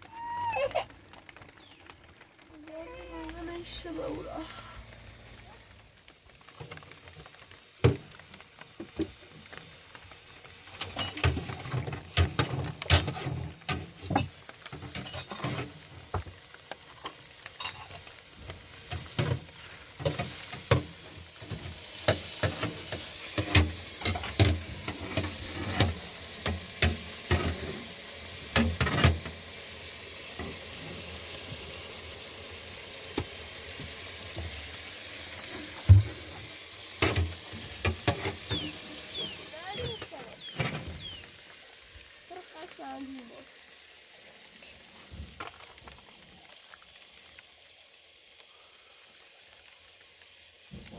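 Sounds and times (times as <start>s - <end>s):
food sizzling: 0.0s - 50.9s
utensil scraping a pan: 11.0s - 15.8s, 21.5s - 27.9s, 37.0s - 40.9s.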